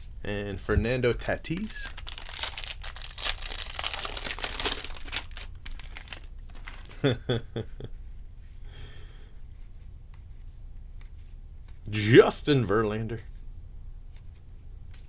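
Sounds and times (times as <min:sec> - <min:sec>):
foil wrapper crinkling and tearing: 0:01.2 - 0:07.0.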